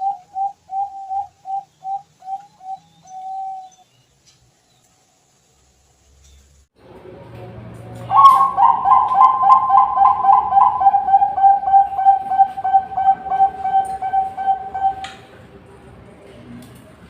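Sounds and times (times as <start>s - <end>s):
dove cooing: 0.0s - 3.7s, 8.1s - 15.3s.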